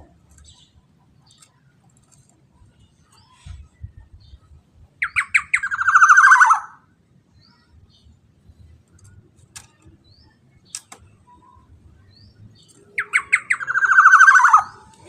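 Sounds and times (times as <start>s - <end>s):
bird calling with buzzy notes: 13.0s - 15.0s.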